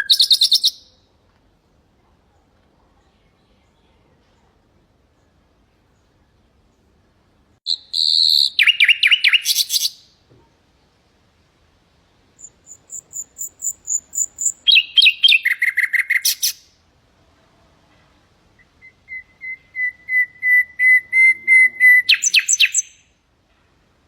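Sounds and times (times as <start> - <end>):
nightingale singing: 0.0 - 1.0, 7.7 - 10.2, 12.3 - 16.8, 18.6 - 23.2.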